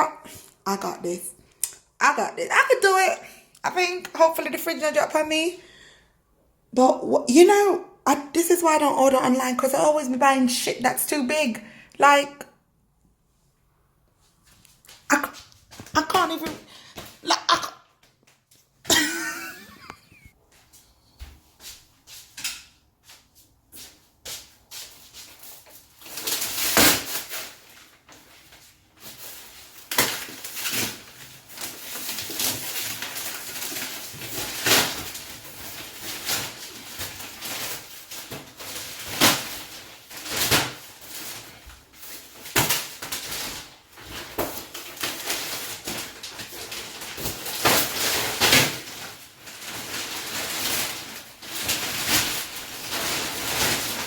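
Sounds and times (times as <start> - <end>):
packaging rustling and scraping: 22.2 - 54.0.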